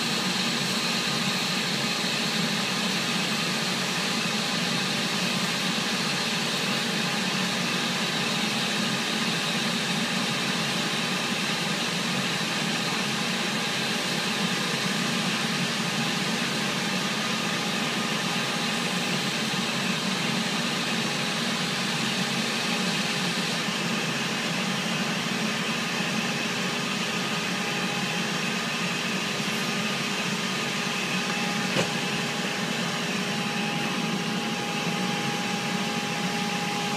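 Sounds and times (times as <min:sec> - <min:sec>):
machinery hum and hiss: 0:00.0 - 0:36.9.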